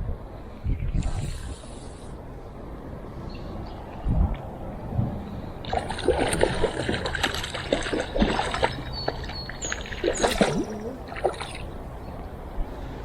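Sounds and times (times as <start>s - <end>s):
water splashing in creek: 5.6s - 12.4s.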